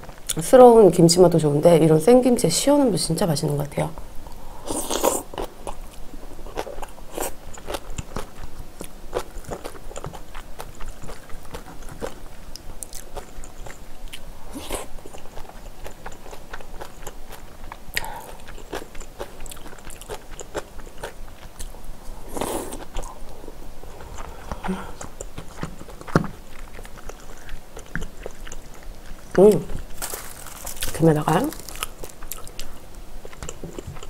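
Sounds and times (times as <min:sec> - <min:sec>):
crunchy chewing: 0:04.6 - 0:34.0.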